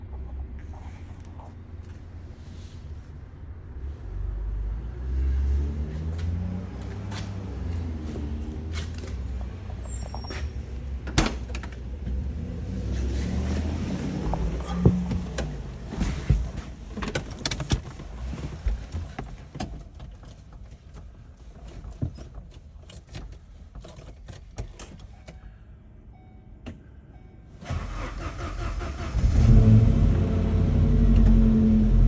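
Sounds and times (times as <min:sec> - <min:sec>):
engine clicks and knocks: 0:10.8 - 0:12.3, 0:14.2 - 0:25.4
engine starting and running: 0:27.6 - 0:32.0.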